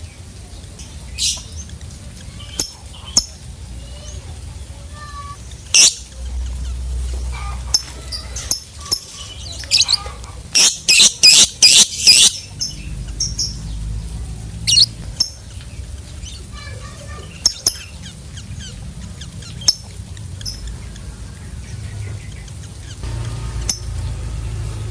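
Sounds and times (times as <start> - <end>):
lovebird chirping and squawking: 1.2 - 4.2, 5.2 - 21.0.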